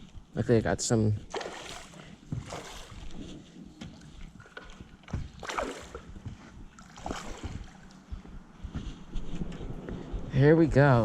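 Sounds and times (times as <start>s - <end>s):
river water flowing: 1.3s - 3.2s, 5.4s - 6.1s, 6.8s - 8.1s.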